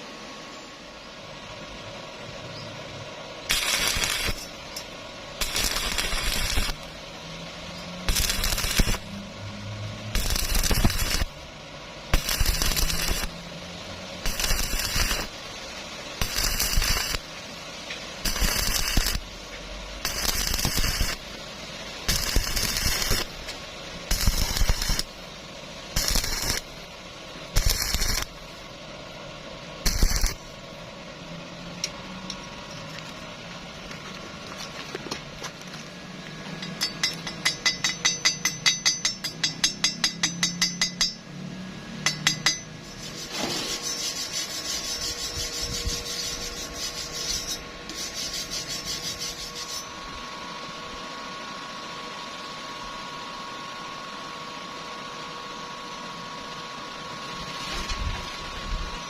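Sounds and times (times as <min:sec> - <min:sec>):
arc welding crackling: 0:03.4 - 0:29.1, 0:29.8 - 0:30.8, 0:42.1 - 0:50.0
sharp metallic taps: 0:36.6 - 0:41.2, 0:42.0 - 0:42.7.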